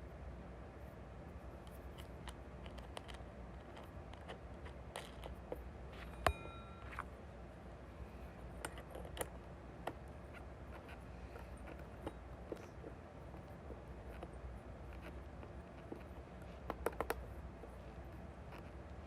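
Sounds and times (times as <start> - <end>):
low hum: 5.1 - 8.8
sharp ringing clink: 6.0 - 7.2.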